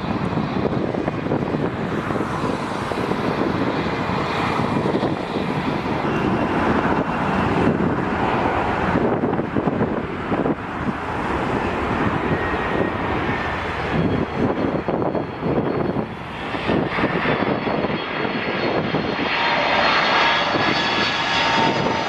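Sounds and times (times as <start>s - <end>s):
jet engines rumbling: 0.0s - 22.0s
wind buffeting microphone: 0.0s - 22.0s.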